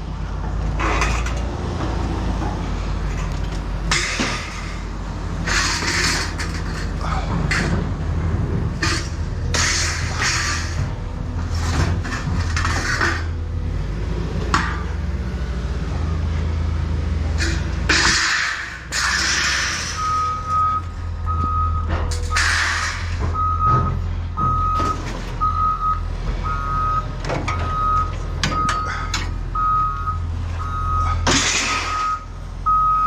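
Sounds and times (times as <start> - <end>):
low vehicle engine rumble: 0.0 - 33.0
scrap metal rattling and clanking: 0.4 - 15.1, 17.4 - 25.7, 30.5 - 32.2.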